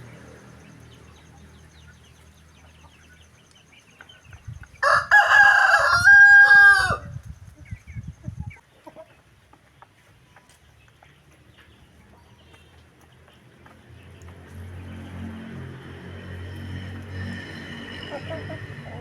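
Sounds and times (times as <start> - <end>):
rooster crowing: 4.8 - 7.2.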